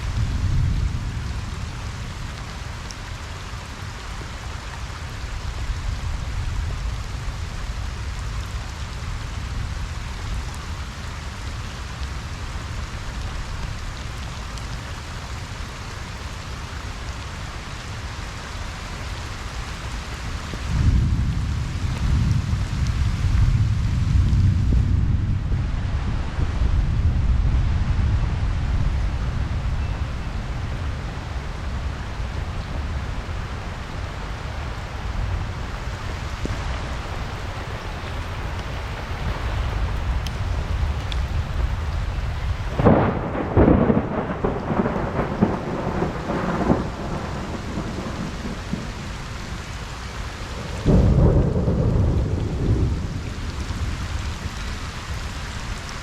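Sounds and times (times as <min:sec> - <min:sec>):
low rumble of thunder: 0:00.0 - 0:16.3, 0:19.1 - 0:56.0
rain falling: 0:00.0 - 0:56.0
loud crackling thunder clap: 0:20.2 - 0:55.4.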